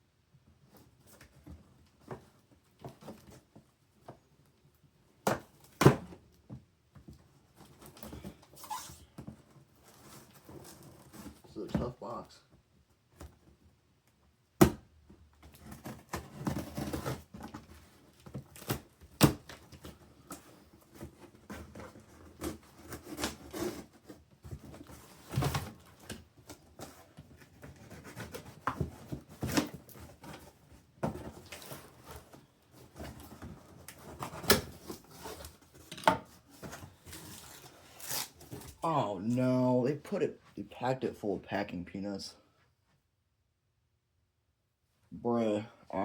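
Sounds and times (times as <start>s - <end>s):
packing tape and cardboard tearing: 7.7s - 11.4s, 15.5s - 38.8s.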